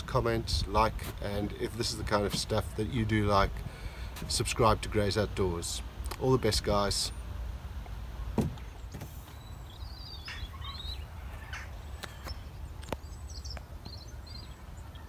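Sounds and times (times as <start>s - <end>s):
small bird warbling chirps: 9.4s - 15.0s.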